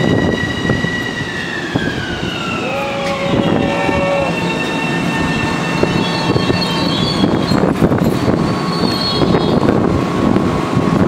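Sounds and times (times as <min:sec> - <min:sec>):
high-pitched brake squeals: 0:00.0 - 0:09.7
train wheels rumbling on rail: 0:00.0 - 0:11.0.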